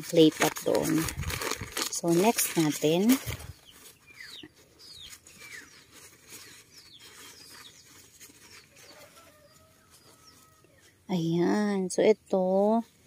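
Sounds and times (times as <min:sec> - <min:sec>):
tissue paper rustling: 0:00.0 - 0:10.6
faint bird chirps: 0:03.4 - 0:11.0.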